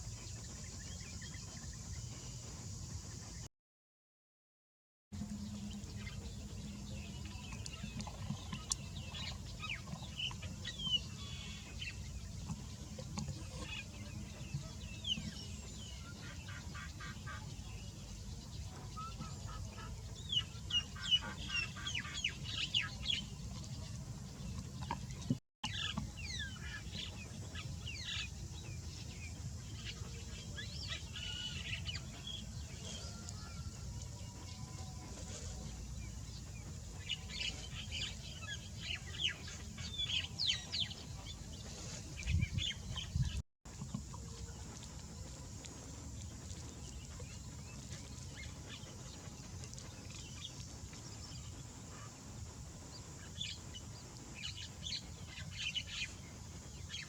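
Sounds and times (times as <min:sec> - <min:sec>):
birds chirping and calling: 0:05.5 - 0:43.4.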